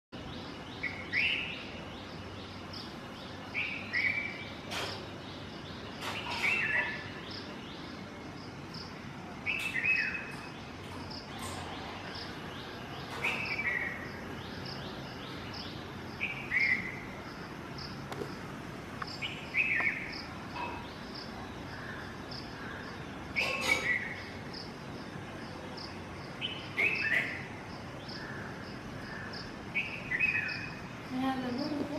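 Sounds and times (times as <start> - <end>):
insects chirping: 7.0 - 31.9.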